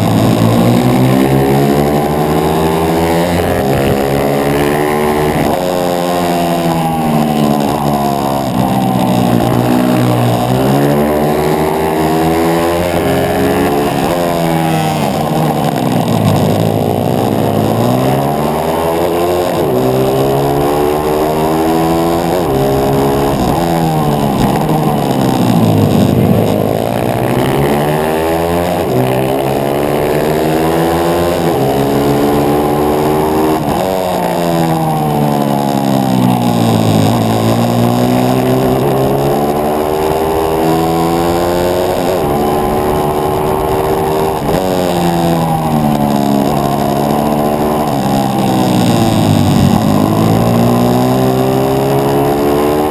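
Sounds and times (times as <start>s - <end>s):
small motorcycle engine revving: 0.0s - 52.9s.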